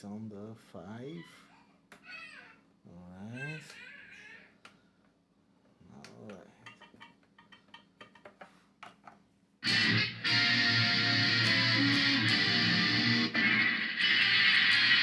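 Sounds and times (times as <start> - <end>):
electric guitar chords: 9.6 - 15.0.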